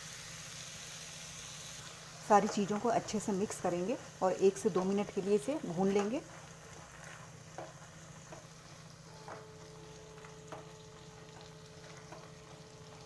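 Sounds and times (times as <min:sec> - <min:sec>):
faint steady sizzle: 0:00.0 - 0:13.0.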